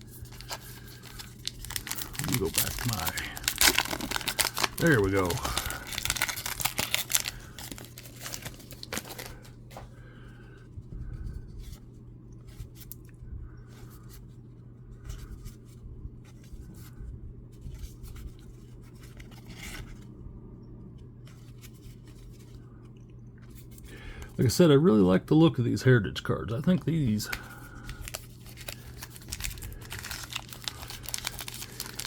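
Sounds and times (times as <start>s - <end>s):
card pack wrapper crackling and tearing: 0.0s - 9.5s, 26.7s - 32.0s
cards rustling and sliding: 0.0s - 9.9s, 26.7s - 32.0s
steady low hum: 0.0s - 32.0s.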